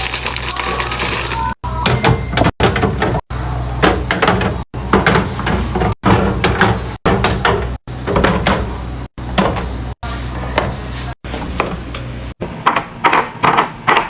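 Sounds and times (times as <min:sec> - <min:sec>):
containers and fridge doors knocking: 0:01.8 - 0:03.2, 0:03.8 - 0:08.7.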